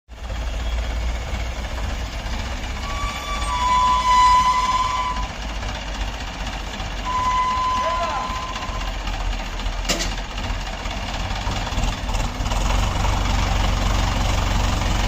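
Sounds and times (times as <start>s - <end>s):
tractor engine rumbling: 0.1s - 15.0s
vehicle horn: 2.8s - 5.3s, 7.0s - 8.9s.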